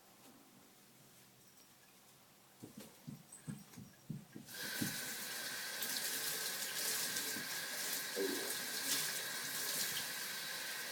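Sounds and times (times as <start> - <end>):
soft low thumps: 2.6 - 5.0
water running from a tap: 4.5 - 10.9.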